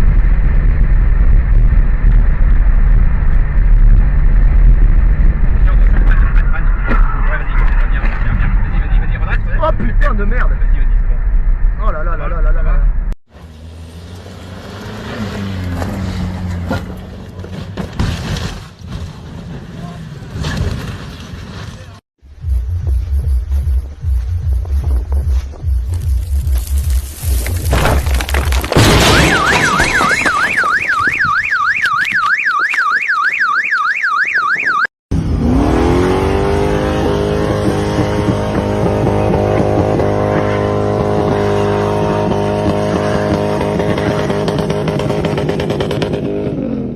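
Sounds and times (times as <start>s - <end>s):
car engine and road noise: 0.0s - 29.6s, 35.1s - 46.9s
electronic siren warbling: 29.0s - 34.9s
vehicle engine revving: 35.1s - 46.9s.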